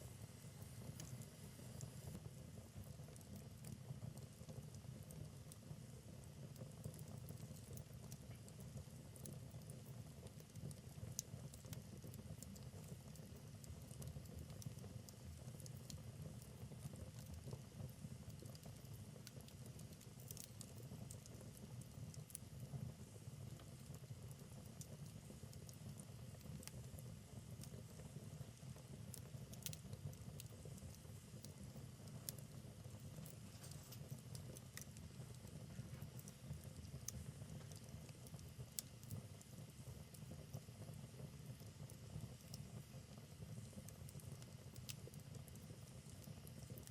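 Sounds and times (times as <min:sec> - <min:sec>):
fire flames rumbling: 0:00.0 - 0:46.9
logs crackling and popping: 0:18.3 - 0:22.4, 0:29.1 - 0:40.6.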